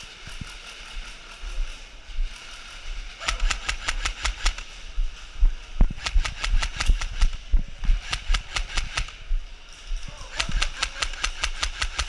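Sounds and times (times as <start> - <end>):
airsoft gun firing: 3.2 - 4.8, 5.8 - 9.2, 10.3 - 12.0.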